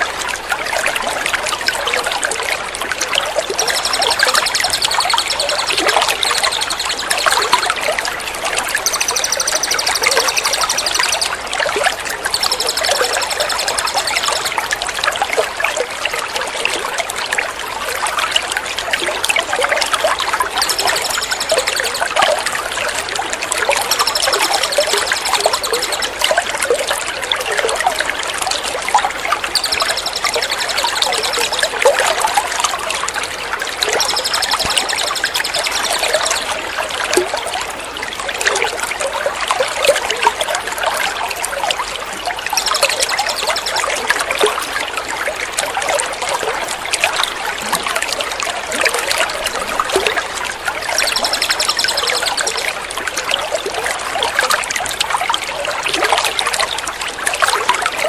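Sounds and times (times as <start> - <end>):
water trickling: 0.0 - 58.0
songbird trilling: 3.4 - 14.8, 19.9 - 26.6, 29.1 - 36.6, 42.4 - 44.2, 50.8 - 52.6.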